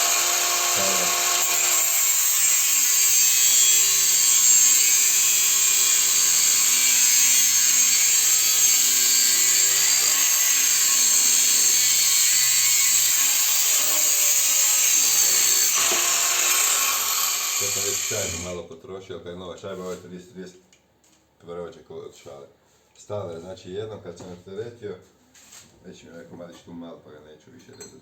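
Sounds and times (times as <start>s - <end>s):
angle grinder cutting metal: 0.0s - 18.5s.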